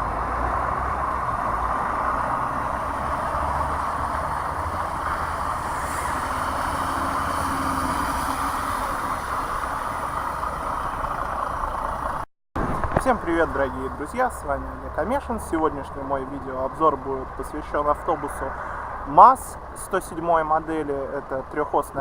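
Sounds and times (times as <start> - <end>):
vehicle engine: 0.0 - 19.8
road rumble: 0.0 - 22.0.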